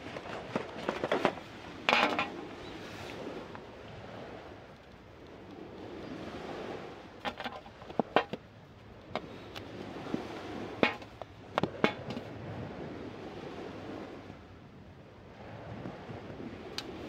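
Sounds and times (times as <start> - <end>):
camp gear clicking and knocking: 0.0 - 2.4, 7.2 - 8.4, 10.8 - 12.3
surf: 0.0 - 14.7.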